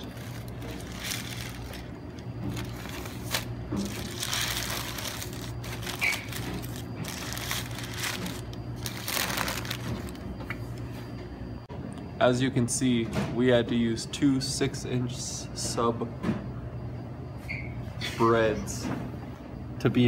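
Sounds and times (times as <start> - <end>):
wrapping paper crinkling: 0.0 - 10.3
steady low hum: 0.0 - 20.0.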